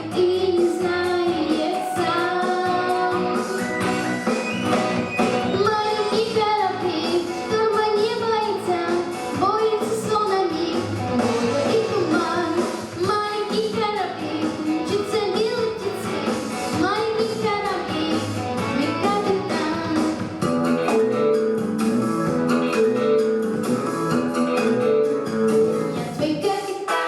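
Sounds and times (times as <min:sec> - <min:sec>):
girl singing: 0:00.0 - 0:03.8, 0:05.4 - 0:20.5, 0:25.8 - 0:27.0
instrumental accompaniment: 0:00.0 - 0:27.0.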